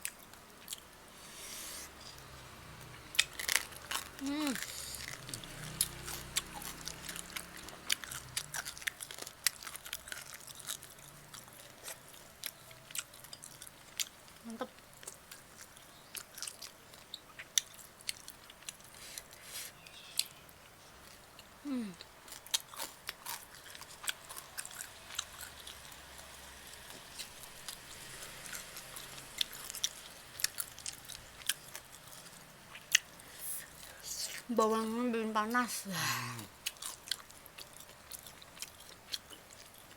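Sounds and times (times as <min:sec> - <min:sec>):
wet chewing and smacking: 0:02.0 - 0:20.4, 0:21.0 - 0:34.0, 0:36.6 - 0:39.9
person humming appreciatively: 0:04.2 - 0:04.6, 0:21.6 - 0:22.0.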